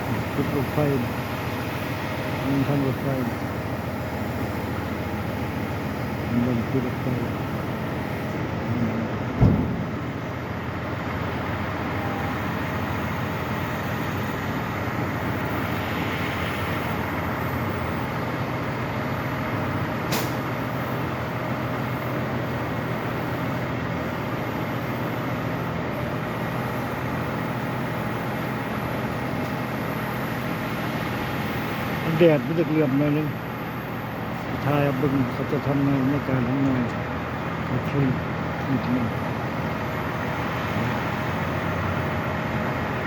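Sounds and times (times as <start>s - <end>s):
vehicle running noise: 0.0s - 43.0s
low thump: 9.3s - 10.0s
sharp click: 20.1s - 20.4s.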